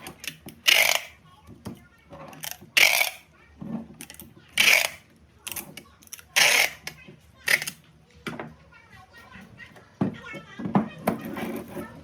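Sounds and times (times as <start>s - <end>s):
rasping ratchet-like strokes: 0.6s - 1.1s, 2.4s - 3.2s, 4.6s - 5.0s.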